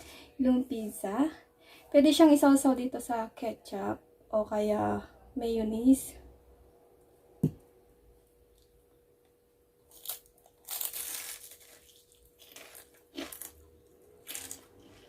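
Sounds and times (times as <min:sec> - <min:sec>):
crunching bites and chewing: 0:09.9 - 0:15.0.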